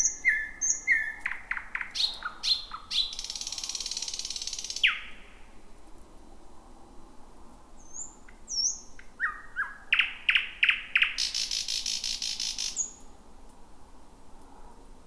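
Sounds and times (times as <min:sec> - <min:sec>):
nightingale singing: 0:00.0 - 0:05.4, 0:07.8 - 0:13.1.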